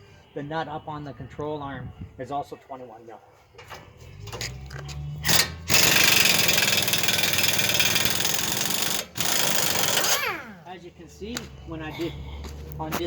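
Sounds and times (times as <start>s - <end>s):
pneumatic impact wrench rattling: 5.2s - 10.5s.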